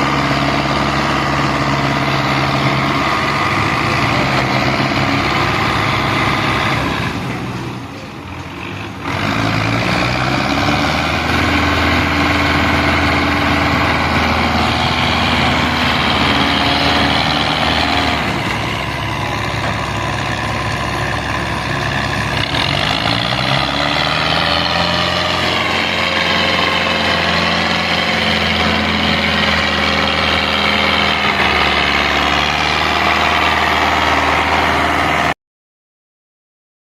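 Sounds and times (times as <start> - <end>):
diesel tractor engine revving: 0.0 - 35.4.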